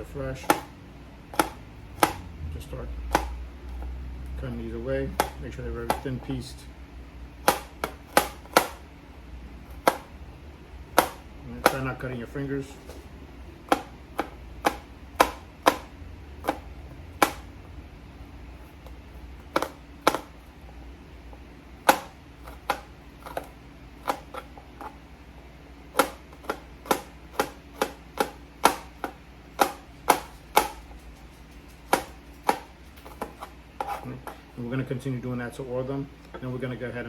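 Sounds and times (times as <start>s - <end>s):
knife slicing garlic on cutting board: 0.3s - 2.3s, 7.4s - 8.8s, 13.6s - 17.5s, 18.6s - 20.4s, 21.8s - 25.0s, 25.9s - 34.4s.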